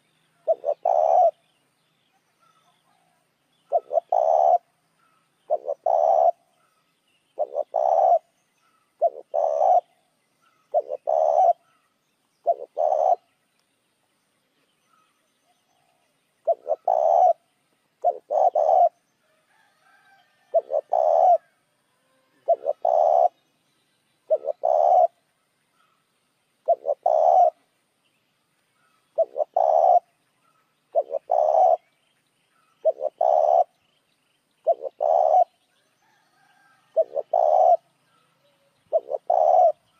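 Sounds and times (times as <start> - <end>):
dove cooing: 0.0 - 1.5, 2.4 - 6.7, 7.4 - 11.8, 12.4 - 13.3, 15.8 - 23.4, 24.2 - 25.3, 26.6 - 27.7, 28.8 - 31.9, 32.8 - 33.8, 34.6 - 39.9.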